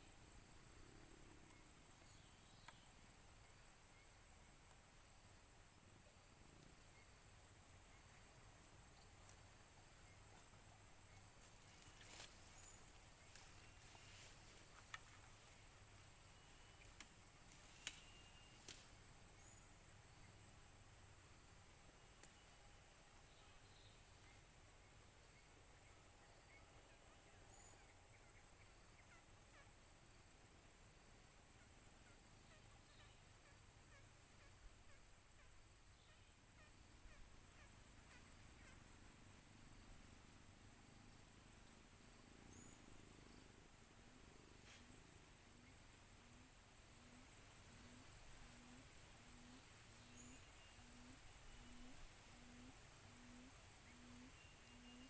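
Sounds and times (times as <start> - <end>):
crickets and insects droning: 0.0 - 55.0
quail calling faintly: 47.9 - 55.0.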